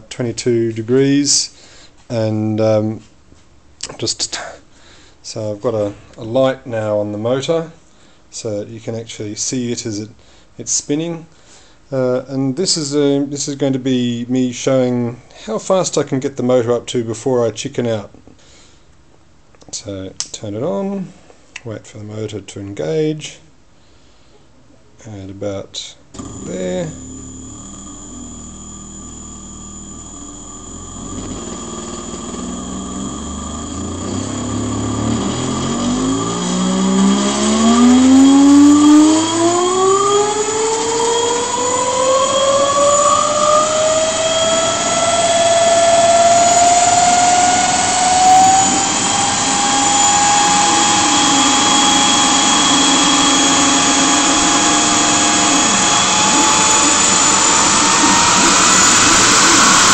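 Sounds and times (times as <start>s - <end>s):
electric motor whine: 26.2s - 59.9s.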